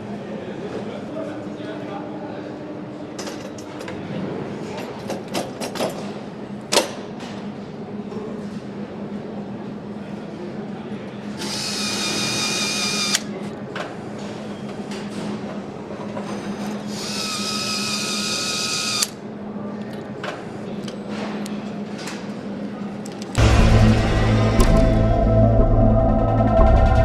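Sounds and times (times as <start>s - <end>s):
power tool whining: 11.4s - 13.2s, 16.9s - 19.1s
steady machine hum: 23.4s - 27.0s.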